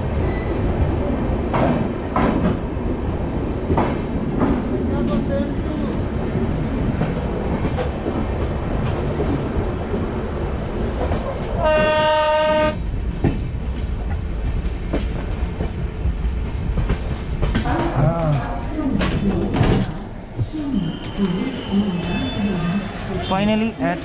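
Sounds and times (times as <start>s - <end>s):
train wheels rumbling on rail: 0.0s - 24.0s
train horn: 11.6s - 12.8s.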